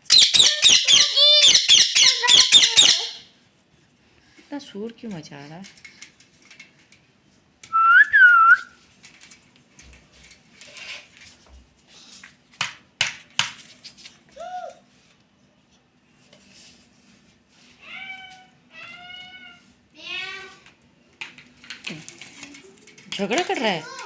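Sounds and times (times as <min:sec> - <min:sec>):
parrot calling: 0:00.0 - 0:03.3.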